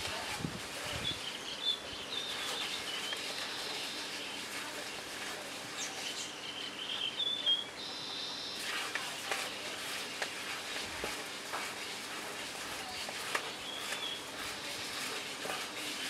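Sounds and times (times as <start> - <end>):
small birds chirping: 0.8 - 4.7, 5.6 - 8.7, 12.8 - 14.7.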